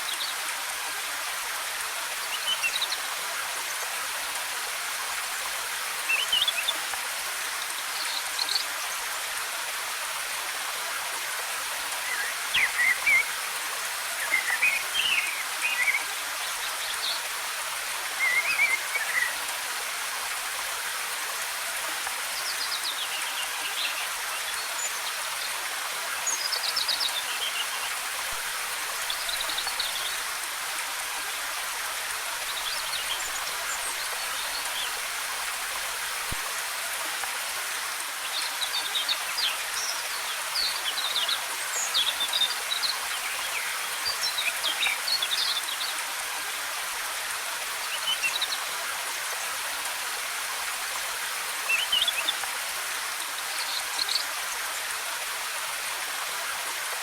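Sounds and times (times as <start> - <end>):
waterfall cascading: 0.0 - 57.0
forest birds chirping: 11.9 - 17.4, 18.1 - 19.5, 22.3 - 30.7, 31.7 - 36.8, 38.2 - 46.0, 47.9 - 48.7, 51.5 - 52.7.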